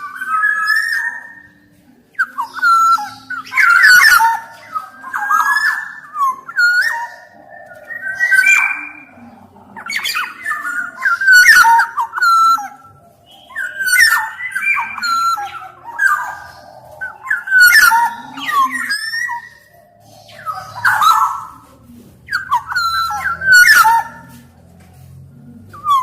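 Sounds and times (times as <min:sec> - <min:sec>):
bird singing fluting whistles: 0:02.2 - 0:09.2, 0:09.9 - 0:21.6, 0:22.3 - 0:24.4.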